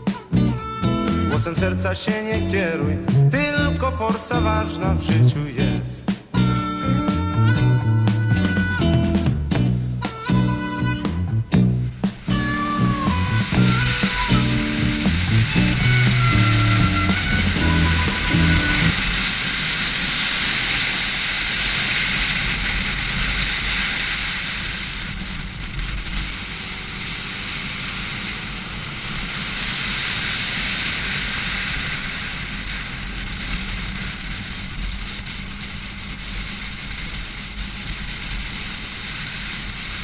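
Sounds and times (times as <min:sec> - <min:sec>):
loud wind rush: 0:00.0 - 0:40.0
motorcycle engine rumble: 0:00.0 - 0:40.0.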